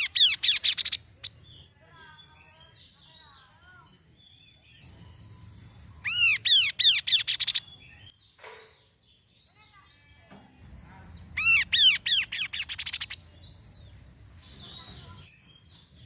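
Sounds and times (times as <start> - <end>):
bird singing: 0.0 - 16.0
faint steady high tone: 2.2 - 6.4.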